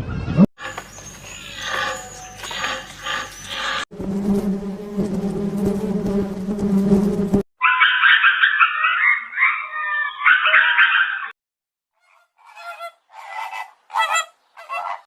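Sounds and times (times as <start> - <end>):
flock of fowl calling: 0.6 - 3.8, 7.6 - 11.3, 12.0 - 15.0
insect buzzing: 0.6 - 7.4.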